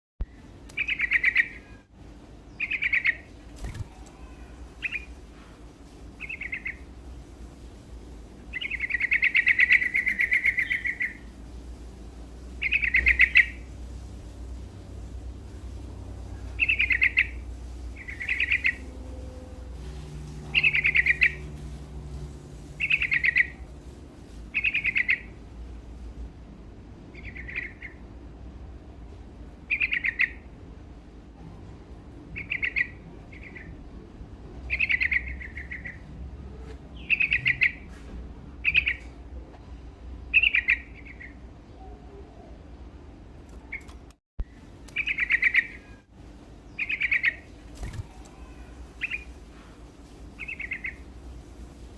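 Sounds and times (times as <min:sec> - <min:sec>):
bird singing bright phrases: 0:00.2 - 0:01.9, 0:02.5 - 0:05.2, 0:06.2 - 0:06.9, 0:08.5 - 0:11.3, 0:12.6 - 0:13.7, 0:16.4 - 0:19.0, 0:19.8 - 0:21.6, 0:22.8 - 0:23.6, 0:24.5 - 0:25.4, 0:27.1 - 0:28.0, 0:29.7 - 0:30.5, 0:34.7 - 0:36.1, 0:36.9 - 0:37.9, 0:40.3 - 0:42.6, 0:43.5 - 0:46.1, 0:46.7 - 0:49.4, 0:50.4 - 0:51.1
faint low hum: 0:00.2 - 0:51.9.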